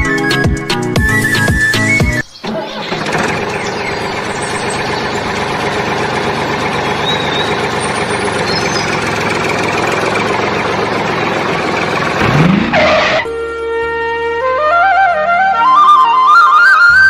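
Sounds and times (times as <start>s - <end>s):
engine running steadily: 2.5s - 13.6s.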